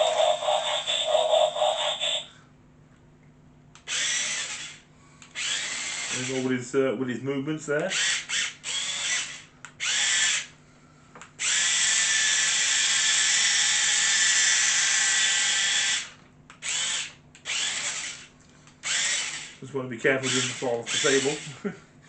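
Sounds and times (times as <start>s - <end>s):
toy robot motors whirring: 0.0s - 2.3s, 3.8s - 6.5s, 7.8s - 10.5s, 11.4s - 19.6s, 20.2s - 21.5s.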